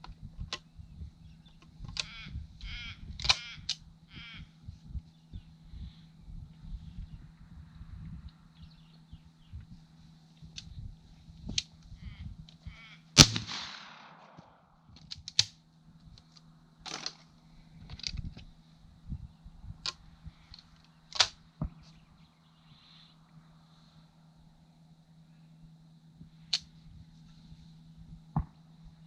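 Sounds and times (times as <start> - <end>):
loud gunshot: 13.2 - 14.6.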